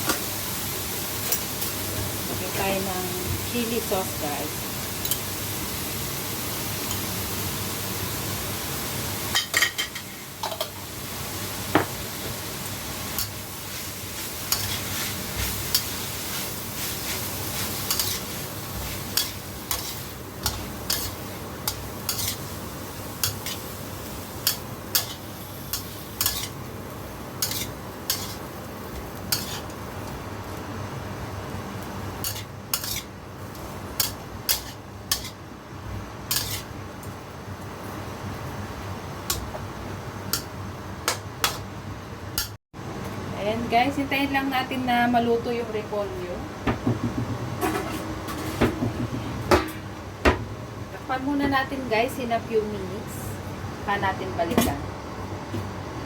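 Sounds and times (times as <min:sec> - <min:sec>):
meat and cabbage sizzling in a pan: 0:00.0 - 0:40.7
spatula knocking and scraping a pan: 0:46.7 - 0:50.5.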